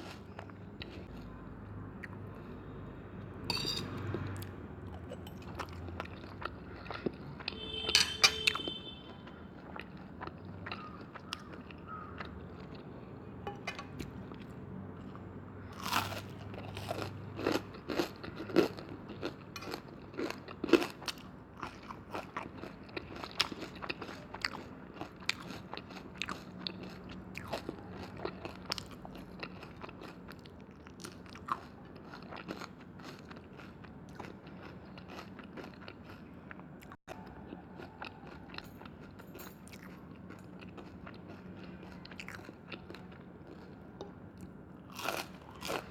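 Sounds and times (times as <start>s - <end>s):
ringing clink: 3.5s - 4.0s, 7.9s - 8.5s
crunchy chewing: 4.0s - 13.3s, 14.0s - 45.9s.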